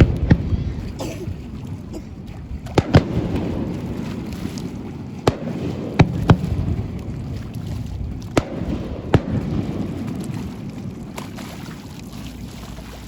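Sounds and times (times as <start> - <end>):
fireworks bangs: 0.0 - 1.5, 2.7 - 4.0, 8.3 - 10.0
low rumble: 0.0 - 11.6.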